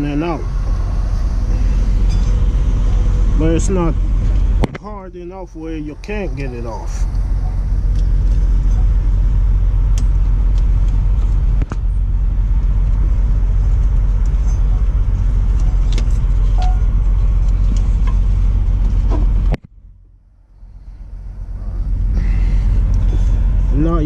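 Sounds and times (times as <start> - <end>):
low vehicle rumble: 0.0 - 24.0.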